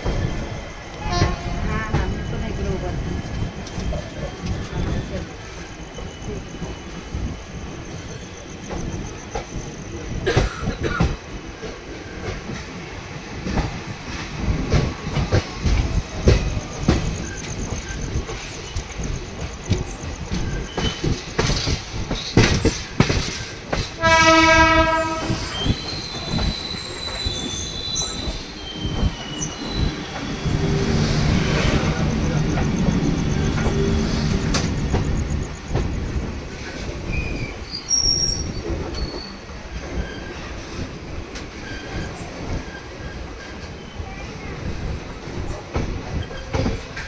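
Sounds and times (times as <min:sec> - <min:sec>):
train horn: 0:01.0 - 0:02.0, 0:24.0 - 0:25.7
train wheels clattering over rail joints: 0:08.6 - 0:47.0
high wheel squeal: 0:24.3 - 0:40.5.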